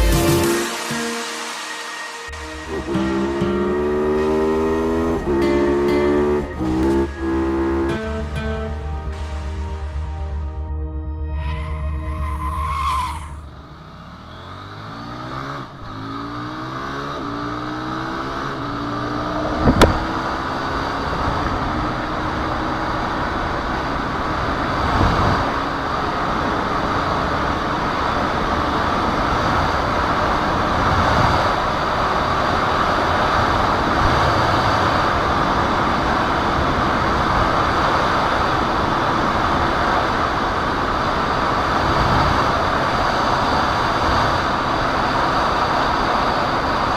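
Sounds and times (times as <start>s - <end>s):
motorcycle engine accelerating: 2.7s - 8.8s, 11.7s - 46.9s
wind rush on microphone: 19.3s - 22.2s, 24.3s - 46.8s.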